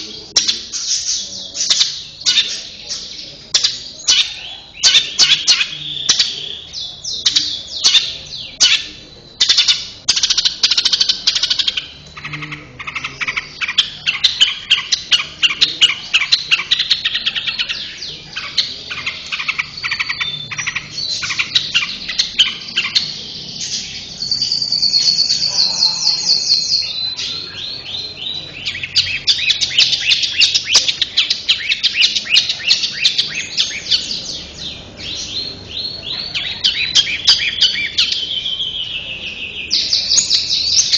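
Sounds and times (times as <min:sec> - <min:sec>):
shrike singing chattering notes: 0:00.0 - 0:40.9.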